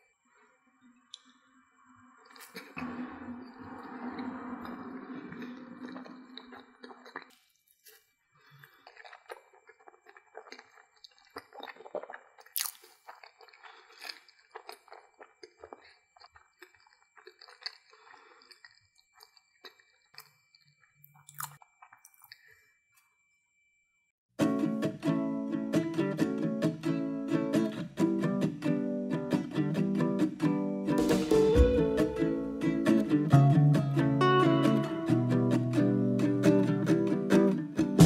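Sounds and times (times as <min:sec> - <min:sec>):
loud sound cutting off: 0:02.8 - 0:06.3, 0:31.0 - 0:33.2
chewing with wet clicks: 0:05.1 - 0:22.5.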